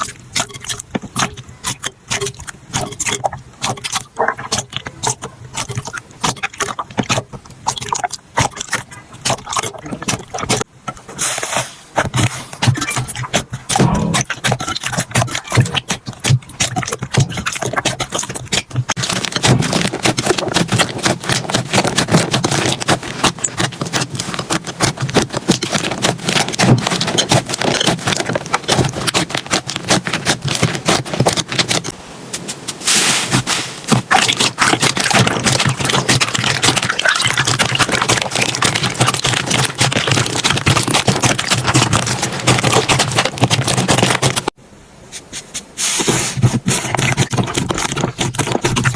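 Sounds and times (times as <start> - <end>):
slime crackling and popping: 13.7 - 31.9, 33.4 - 44.6.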